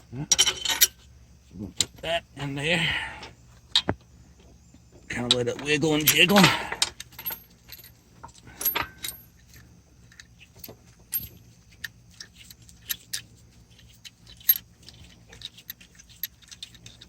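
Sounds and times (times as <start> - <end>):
faint steady hum: 0.0 - 17.0
metallic clinks of bolts: 0.3 - 1.0, 5.2 - 13.2.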